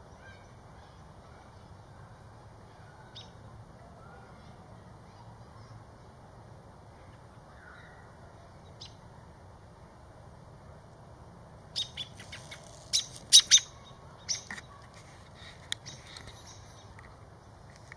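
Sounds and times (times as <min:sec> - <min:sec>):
bird chirping high and sharp: 0:11.8 - 0:14.8.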